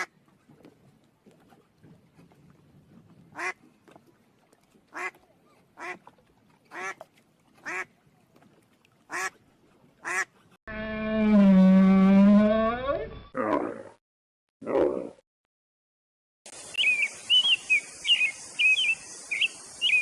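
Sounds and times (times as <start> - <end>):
duck quacking: 10.0 - 10.3.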